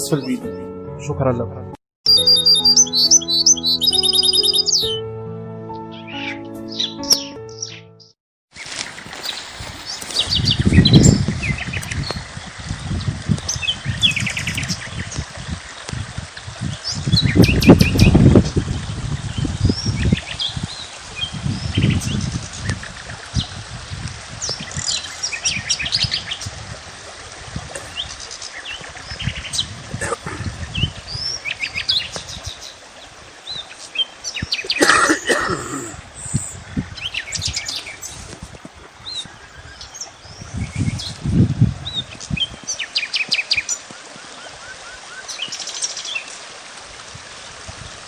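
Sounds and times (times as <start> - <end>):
small birds chirping: 2.1 - 5.0, 5.8 - 12.2.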